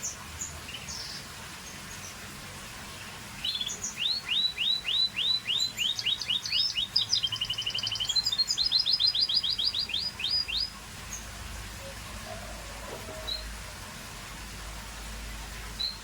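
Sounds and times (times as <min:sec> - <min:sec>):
canary singing: 0:03.4 - 0:13.5.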